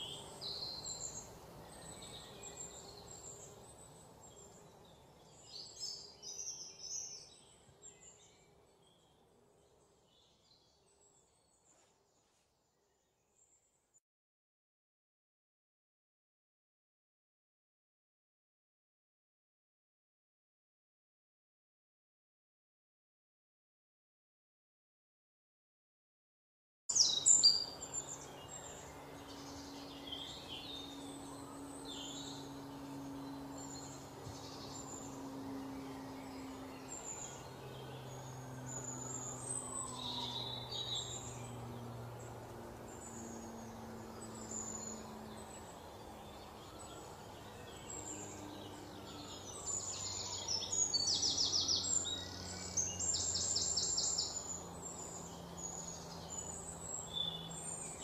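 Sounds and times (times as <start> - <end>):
birds chirping: 0.0 - 11.6, 26.9 - 58.0
faint low hum: 27.2 - 58.0.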